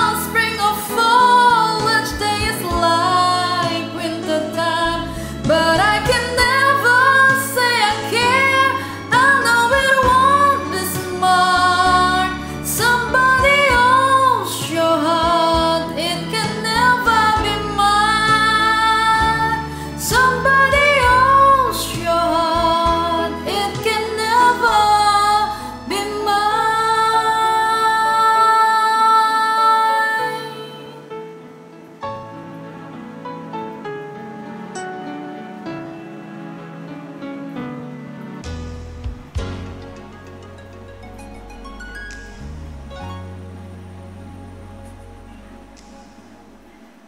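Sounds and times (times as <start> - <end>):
woman singing a slow ballad: 0.0 - 31.6
karaoke backing track: 0.0 - 47.0.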